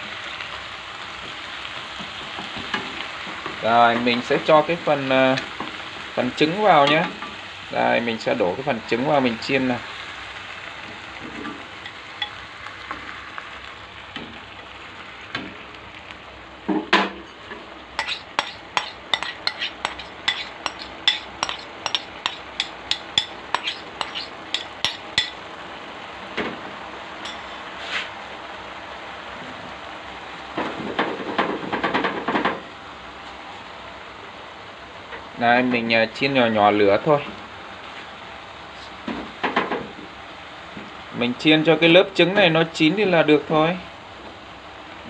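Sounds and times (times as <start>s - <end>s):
food sizzling in a pan: 0.0s - 45.0s
thump: 16.7s - 17.2s
utensils clicking on dishware: 18.0s - 25.4s.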